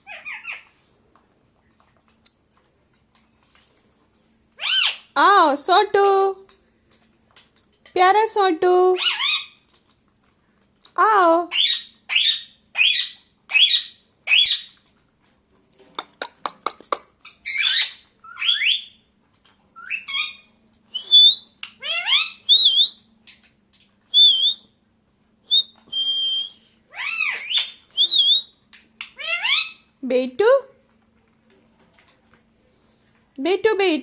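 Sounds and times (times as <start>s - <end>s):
parakeet screeching: 0.0s - 0.7s, 4.6s - 5.2s, 9.0s - 9.6s, 11.5s - 14.8s, 17.3s - 19.0s, 19.8s - 20.5s, 21.8s - 22.5s, 26.9s - 27.8s, 29.0s - 29.9s
parakeet whistling: 17.4s - 19.0s, 19.8s - 23.1s, 24.1s - 24.7s, 25.5s - 29.8s.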